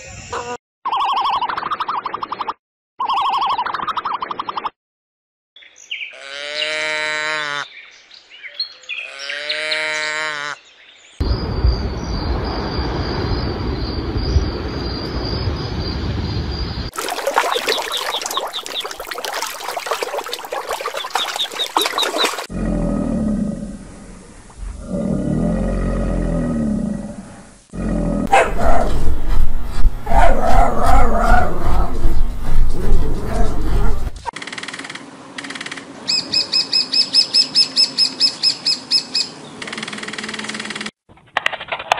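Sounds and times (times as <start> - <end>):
other animal sounds: 17.0 - 26.7.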